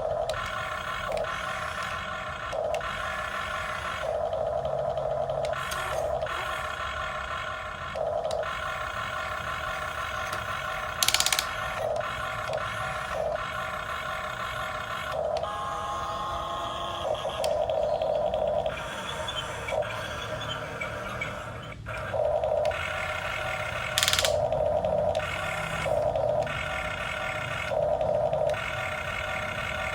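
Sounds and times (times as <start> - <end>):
model excavator electric whine: 0.0 - 29.9.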